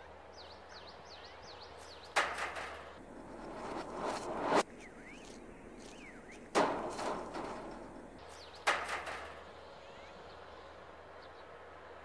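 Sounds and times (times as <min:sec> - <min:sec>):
faint high bird chirps: 0:00.0 - 0:02.2, 0:04.7 - 0:06.5, 0:09.5 - 0:12.0
bird harsh calls: 0:00.0 - 0:03.0, 0:08.0 - 0:11.6.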